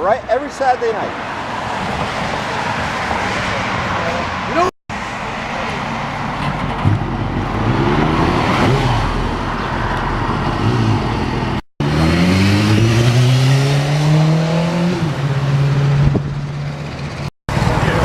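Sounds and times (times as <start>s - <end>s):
rushing wind and road noise: 0.0s - 18.0s
motorcycle engine accelerating: 10.4s - 18.0s.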